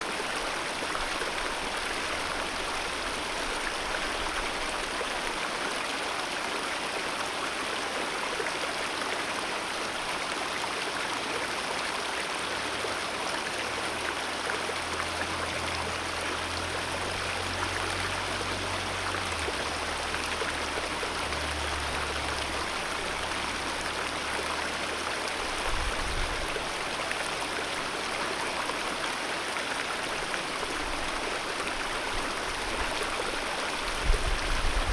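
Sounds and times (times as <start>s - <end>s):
river rushing over rocks: 0.0s - 34.9s.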